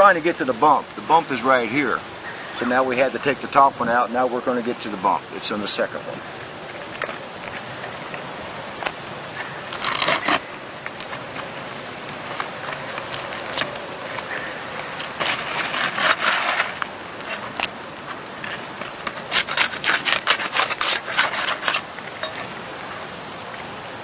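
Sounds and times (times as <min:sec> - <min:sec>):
shingles scraping and crackling: 0:06.3 - 0:23.6.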